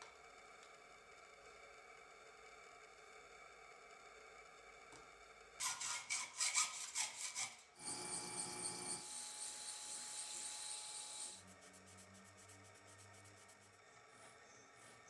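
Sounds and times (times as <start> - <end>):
scraping strokes like filing: 5.6 - 7.7
high-pitched whirring machine: 5.6 - 15.0
faint low hum: 11.0 - 15.0.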